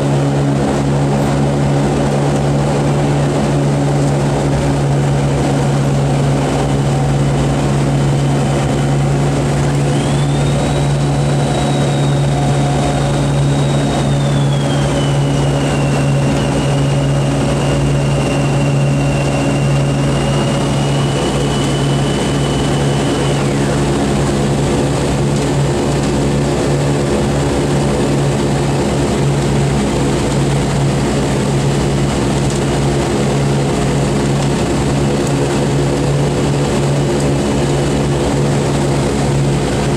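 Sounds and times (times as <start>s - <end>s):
piston aircraft engines humming: 0.0s - 39.9s
thin high whine: 8.2s - 24.2s.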